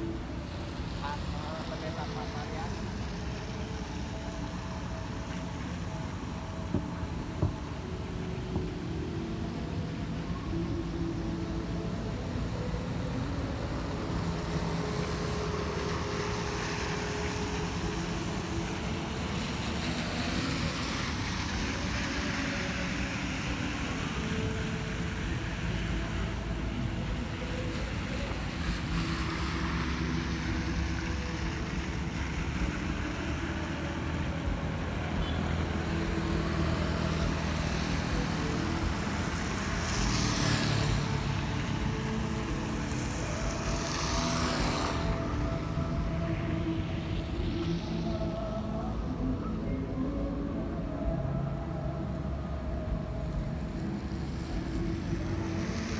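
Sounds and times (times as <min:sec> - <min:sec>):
engine hum of traffic: 0:00.0 - 0:55.9
tyre hiss on wet road: 0:10.9 - 0:48.8, 0:52.1 - 0:55.9.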